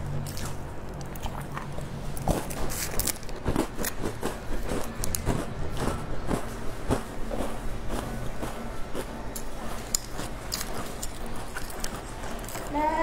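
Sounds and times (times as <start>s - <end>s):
biscuits crunching when chewed: 0.2s - 12.8s.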